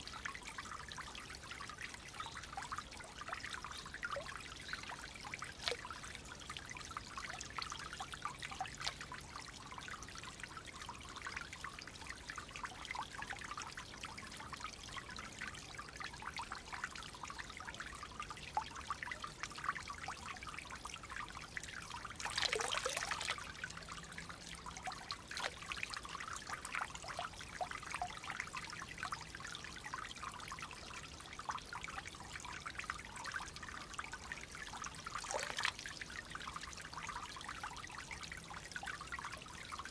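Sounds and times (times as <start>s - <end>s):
water trickling and gurgling: 0.0s - 39.9s.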